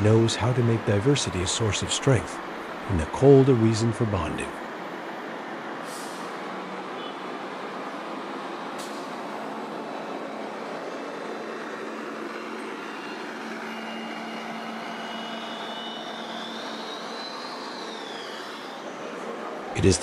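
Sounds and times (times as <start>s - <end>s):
distant traffic noise: 0.0s - 20.0s
faint high whine: 12.9s - 20.0s.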